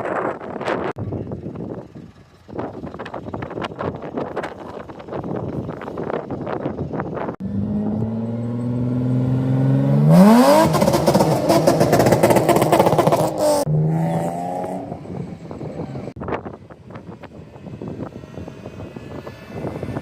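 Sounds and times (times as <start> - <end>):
car engine revving: 7.4 - 16.2.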